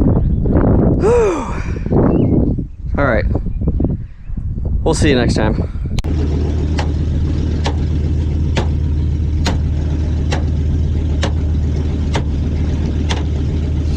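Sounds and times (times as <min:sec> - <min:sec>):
car engine idling: 0:06.0 - 0:13.9.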